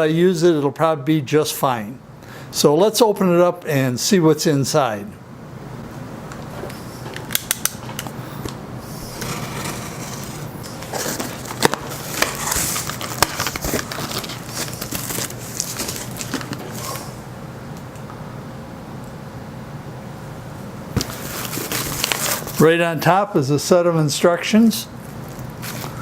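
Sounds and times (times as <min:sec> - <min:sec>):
cardboard rustling and scraping: 0:08.9 - 0:17.2, 0:21.0 - 0:22.6, 0:25.6 - 0:26.0.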